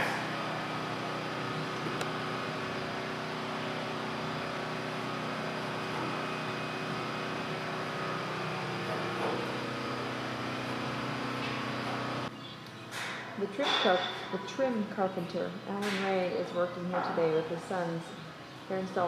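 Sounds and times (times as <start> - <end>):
mechanical hum: 0.0 - 19.0.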